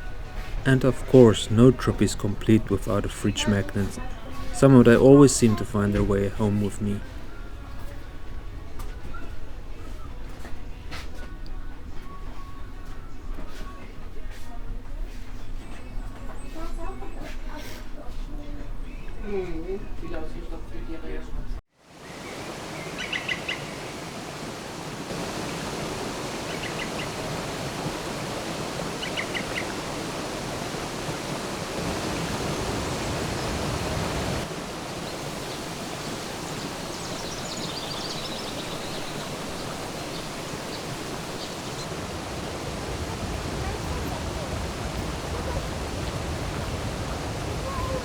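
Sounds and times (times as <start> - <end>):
rushing water: 0.0 - 7.1, 21.8 - 48.0
bird chirping: 22.1 - 24.1, 25.3 - 42.8.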